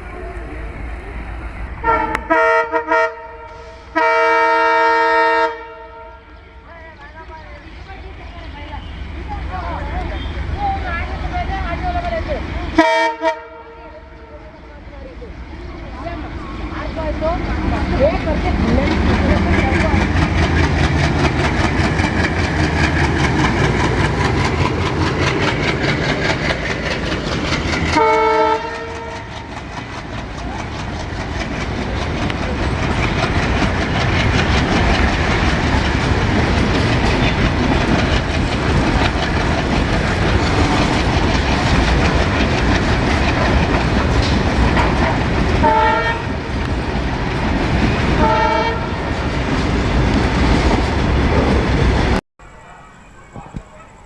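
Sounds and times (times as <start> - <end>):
train horn blasts: 1.8 - 6.5, 12.8 - 14.1, 28.0 - 29.4, 45.6 - 46.4, 48.2 - 49.0
train wheels clattering: 16.1 - 52.2.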